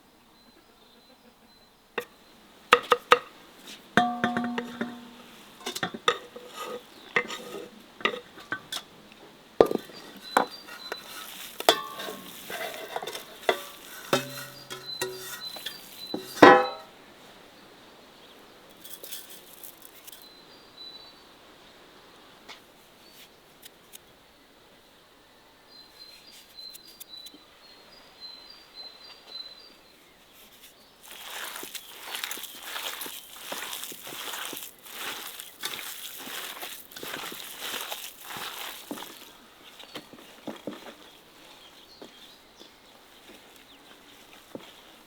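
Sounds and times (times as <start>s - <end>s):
metal cookware clinking: 4.0s - 8.9s, 9.6s - 16.9s.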